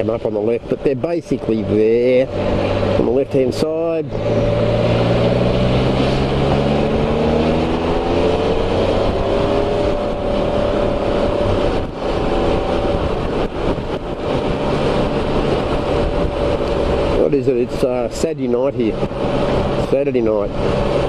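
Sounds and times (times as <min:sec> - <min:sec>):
three-wheeler engine accelerating: 0:00.0 - 0:21.0
wet road noise: 0:00.0 - 0:21.0
wind rush: 0:00.0 - 0:21.0.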